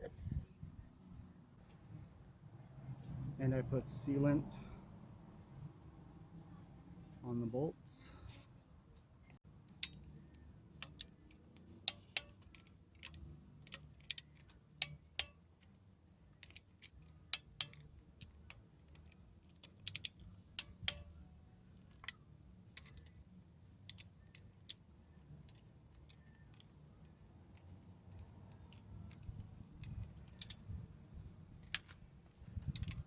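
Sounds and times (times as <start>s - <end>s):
hand tools clicking and tapping: 9.7s - 15.7s, 16.4s - 21.2s.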